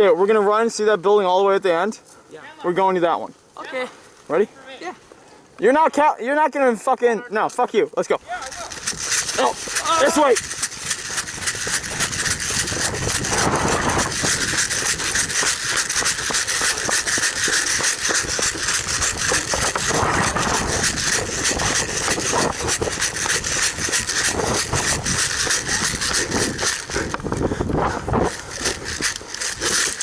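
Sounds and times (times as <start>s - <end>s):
gear rubbing and rattling: 7.5s - 30.0s
running footfalls: 8.0s - 30.0s.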